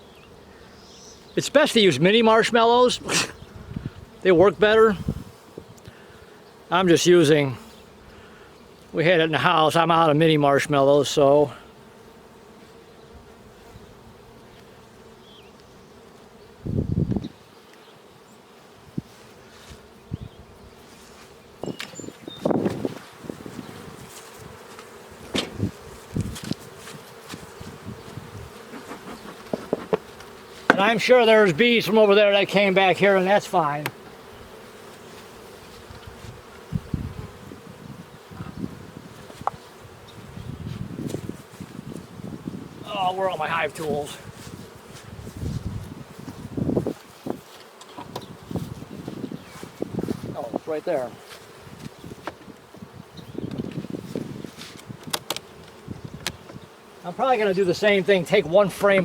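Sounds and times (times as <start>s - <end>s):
bees buzzing: 0.0s - 59.0s
loud rustle: 20.8s - 30.9s.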